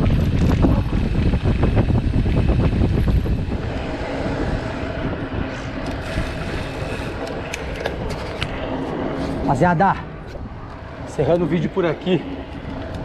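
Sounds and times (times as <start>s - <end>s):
rolling hum of bike: 0.0s - 13.0s
wind buffeting microphone: 0.0s - 13.0s.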